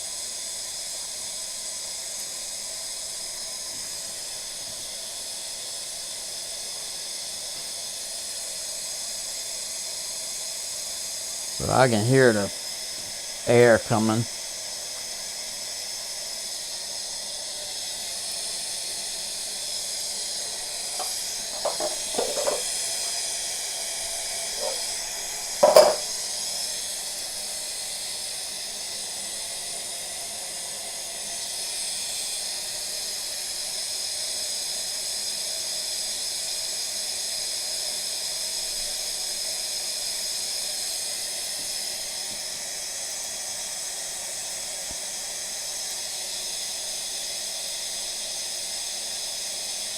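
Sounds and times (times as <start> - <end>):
air hissing from tank line: 1.2 - 28.8, 31.0 - 49.9
light knocks: 21.0 - 22.7, 25.6 - 26.0.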